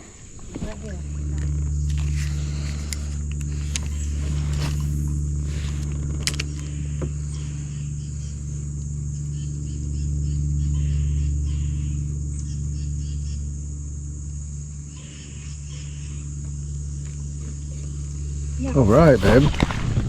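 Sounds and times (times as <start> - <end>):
low motor hum: 0.0 - 20.0
high hiss: 18.6 - 20.0.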